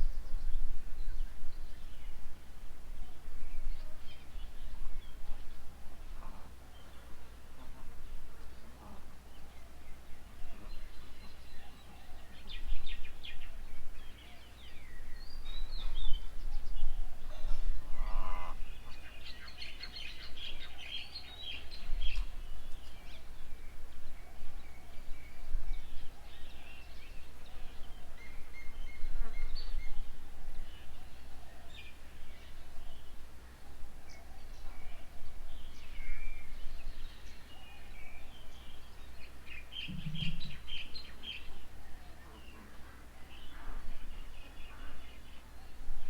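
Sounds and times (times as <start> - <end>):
birds chirping and chattering: 38.3 - 41.6
lower bird call: 39.6 - 43.9.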